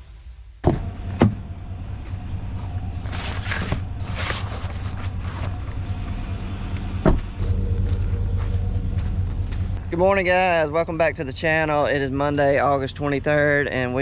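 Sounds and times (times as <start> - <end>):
vehicle engine idling: 0.7 - 14.0
rustling: 1.8 - 9.8.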